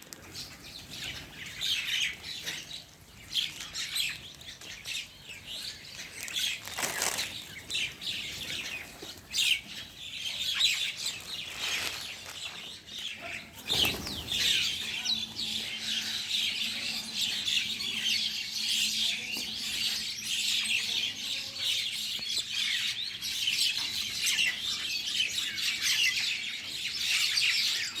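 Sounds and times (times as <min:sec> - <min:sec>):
rustling: 0:05.9 - 0:07.8, 0:10.7 - 0:13.0.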